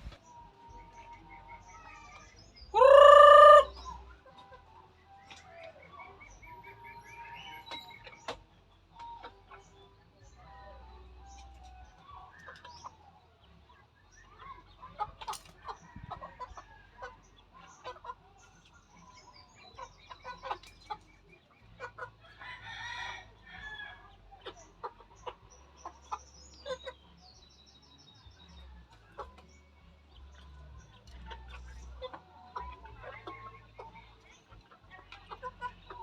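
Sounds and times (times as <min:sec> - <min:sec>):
chickens clucking: 0:00.0 - 0:36.0
loud chicken call: 0:02.7 - 0:03.8.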